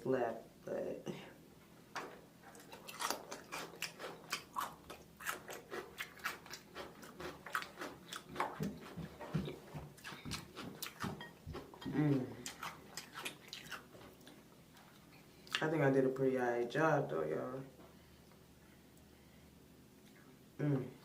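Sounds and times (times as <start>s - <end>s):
person chewing food: 2.4s - 15.6s.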